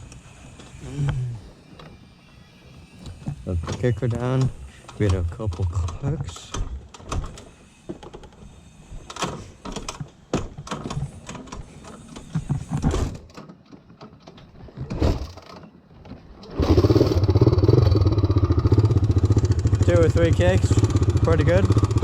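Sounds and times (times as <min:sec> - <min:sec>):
tractor engine starting and running: 0:16.4 - 0:22.0.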